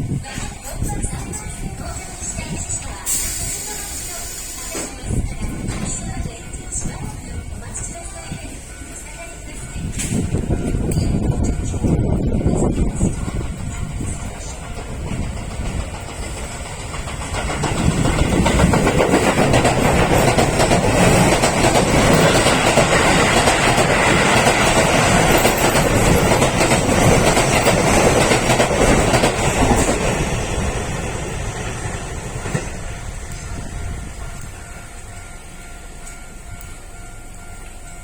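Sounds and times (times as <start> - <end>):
electric train running on tracks: 0.0 - 38.0.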